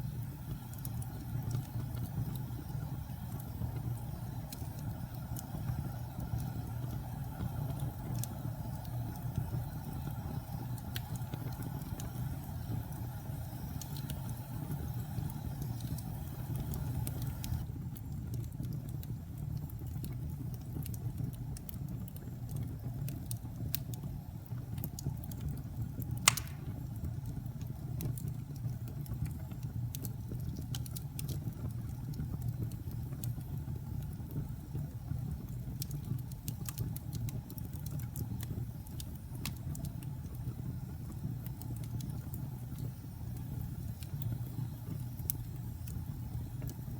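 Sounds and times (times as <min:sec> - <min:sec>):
fire crackling: 0:00.0 - 0:46.9
wood fire burning: 0:00.0 - 0:46.9
sharp pop of fire: 0:26.2 - 0:27.0.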